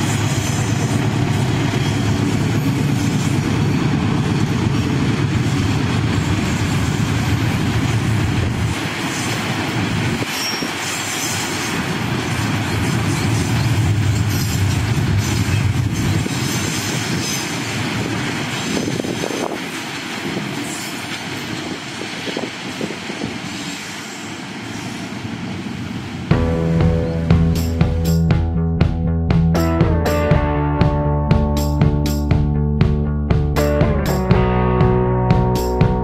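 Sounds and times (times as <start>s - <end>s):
freight train wheels clattering: 0.0s - 24.7s.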